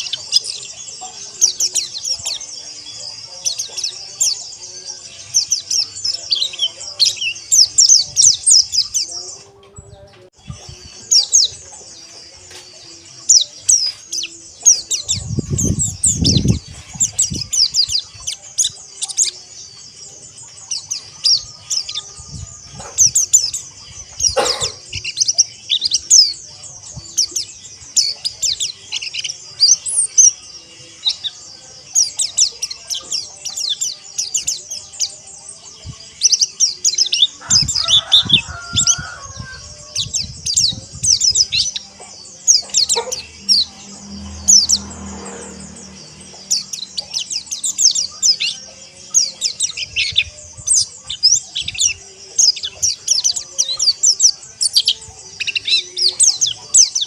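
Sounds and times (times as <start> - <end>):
birds twittering in chorus: 0.0 - 57.0.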